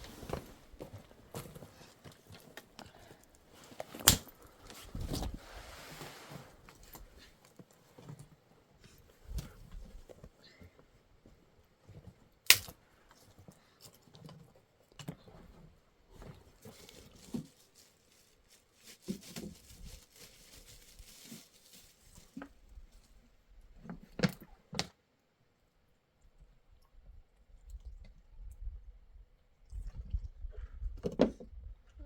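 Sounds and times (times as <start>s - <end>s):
rustling: 0.0s - 10.8s, 15.3s - 23.2s.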